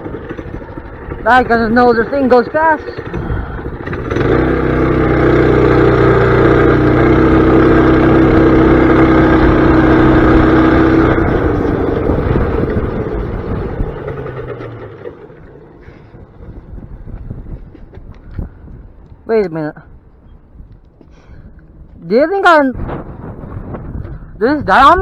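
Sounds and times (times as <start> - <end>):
small gas engine running: 0.0 - 18.9.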